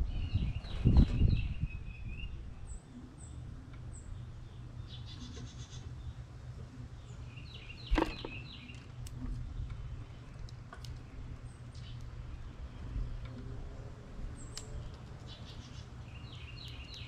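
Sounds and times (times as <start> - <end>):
steady low rumble: 0.0 - 17.0
birds chirping: 0.1 - 17.0.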